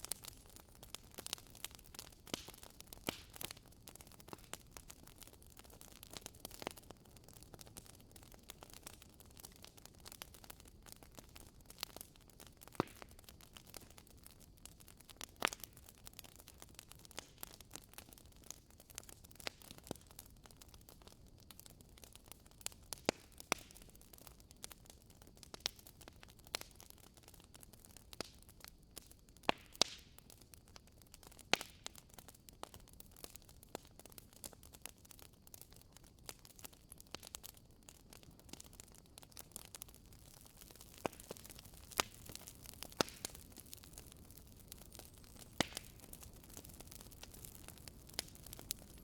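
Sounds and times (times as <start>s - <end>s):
faint steady hiss: 0.0s - 5.5s
wood fire crackling: 0.0s - 49.0s.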